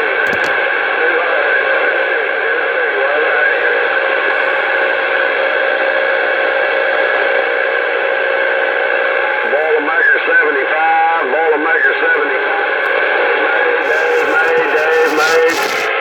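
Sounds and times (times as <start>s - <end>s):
radio static: 13.8s - 16.0s.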